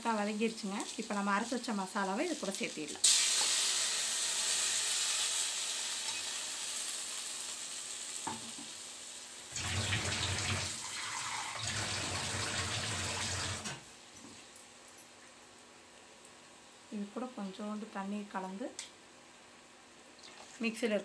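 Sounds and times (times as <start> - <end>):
paste sizzling in hot oil: 0.5 - 8.4
tap water running: 9.5 - 13.8.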